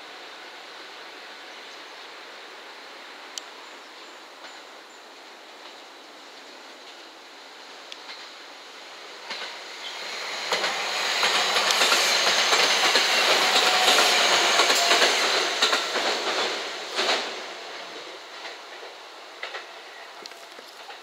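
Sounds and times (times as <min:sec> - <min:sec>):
electric train passing: 0:06.7 - 0:21.0
wheels clicking over rail joints: 0:18.3 - 0:21.0.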